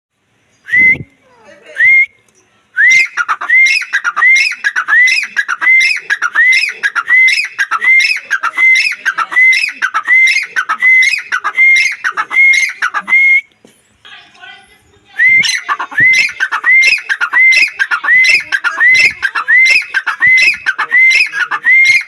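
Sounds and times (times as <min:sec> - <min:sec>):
francolin calling: 0:15.3 - 0:22.0.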